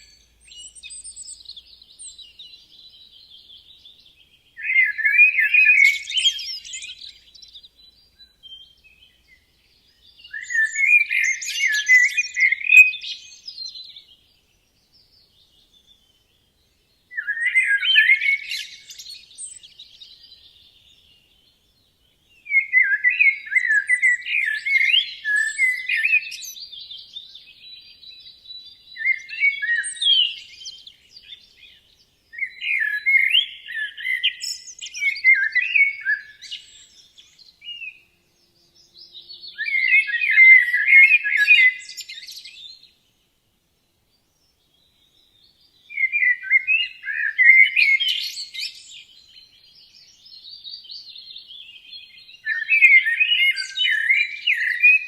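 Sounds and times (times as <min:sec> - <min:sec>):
songbird chirping: 0:00.0 - 0:55.0.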